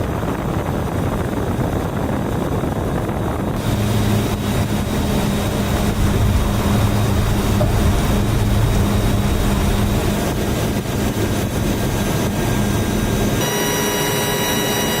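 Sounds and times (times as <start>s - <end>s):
turboprop engines droning: 0.0s - 15.0s
high-pitched tones: 13.4s - 15.0s.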